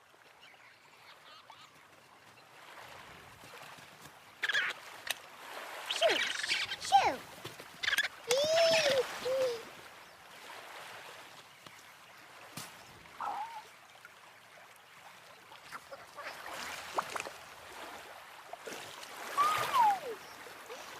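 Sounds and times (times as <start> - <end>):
faint running water: 0.0 - 20.9
bird call: 19.3 - 20.9.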